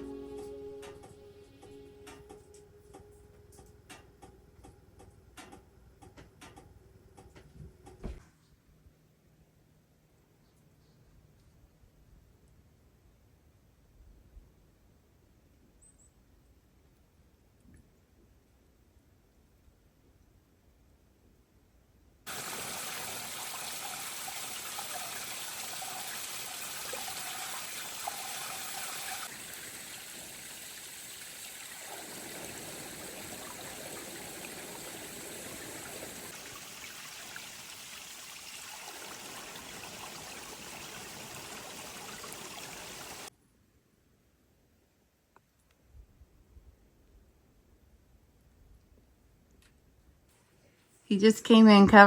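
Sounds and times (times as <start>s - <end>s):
running water rushing: 22.3s - 43.3s.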